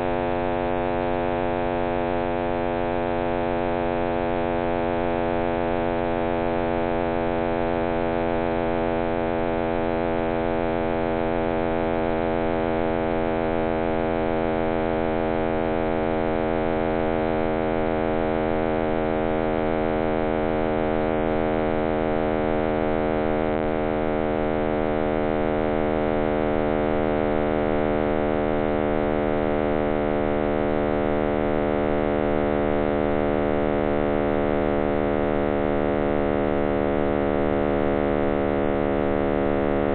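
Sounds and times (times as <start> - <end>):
dense hum of stacked tones: 17.8 - 39.9.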